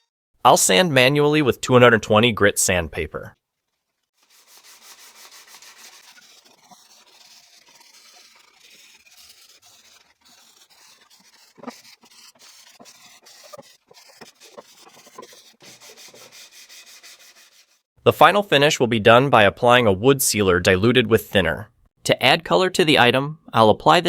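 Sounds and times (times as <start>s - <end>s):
sandpaper rubbing on wood: 4.2s - 17.8s.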